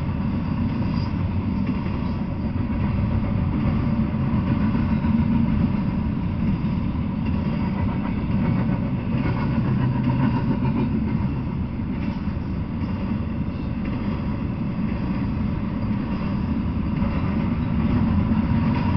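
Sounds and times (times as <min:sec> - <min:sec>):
freight train wheels rumbling: 0:00.0 - 0:18.9.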